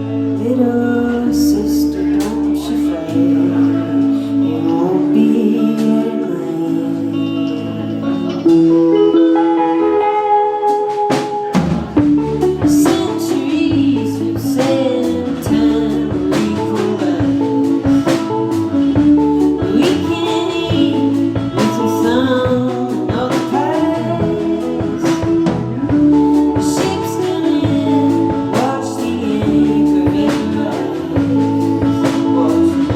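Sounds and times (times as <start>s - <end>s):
electric guitar: 0.0s - 32.9s
person singing: 0.0s - 32.9s
drum kit beat: 8.5s - 32.9s.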